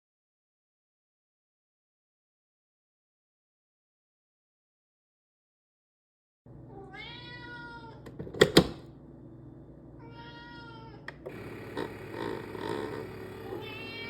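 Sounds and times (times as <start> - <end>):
cat meowing: 6.7 - 8.1, 10.0 - 11.1, 13.5 - 14.0.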